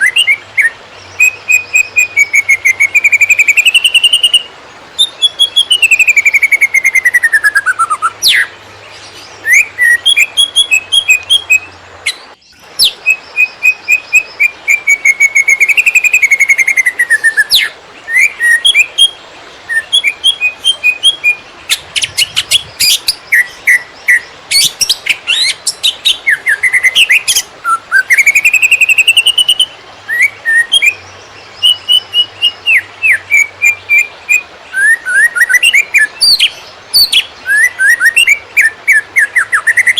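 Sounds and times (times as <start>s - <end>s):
bird chattering song: 0.0s - 39.9s
bird whistled slurs: 31.6s - 39.9s.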